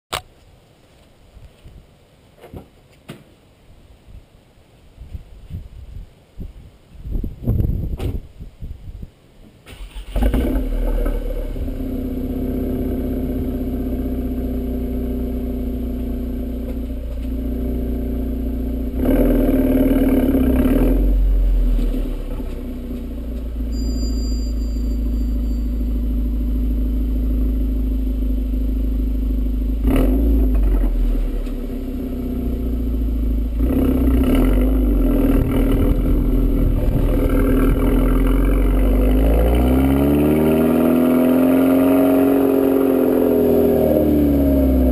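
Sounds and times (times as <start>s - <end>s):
car engine revving while driving: 10.2s - 23.8s, 29.6s - 44.9s.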